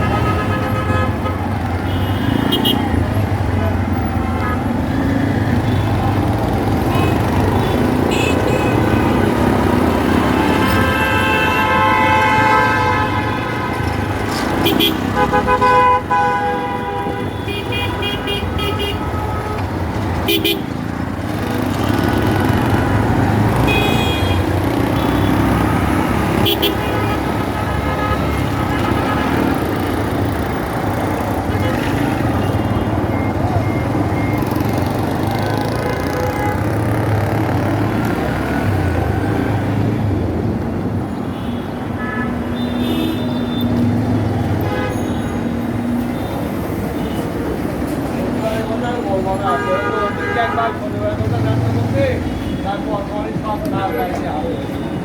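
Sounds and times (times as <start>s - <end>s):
vehicle horns honking: 0.0s - 3.0s, 6.8s - 9.3s, 9.9s - 20.8s, 21.8s - 30.6s, 31.2s - 37.3s, 41.1s - 47.5s, 48.4s - 52.9s
road traffic rumble: 0.0s - 55.0s.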